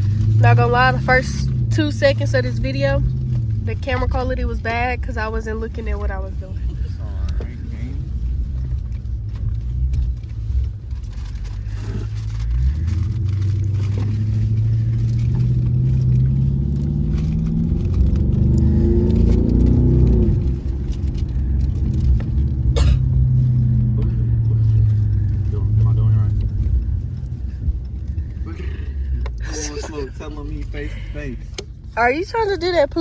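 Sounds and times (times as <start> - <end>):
car engine accelerating: 0.0 - 33.0.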